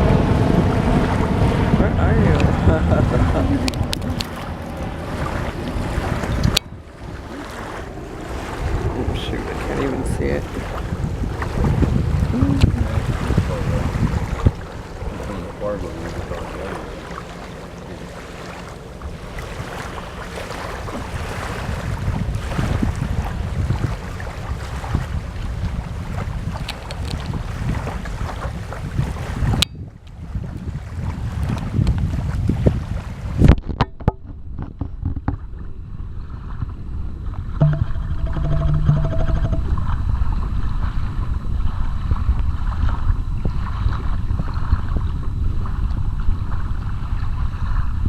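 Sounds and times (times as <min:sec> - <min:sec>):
helicopter rotor and engine rumble: 0:00.0 - 0:22.2
wind buffeting microphone: 0:00.0 - 0:48.0.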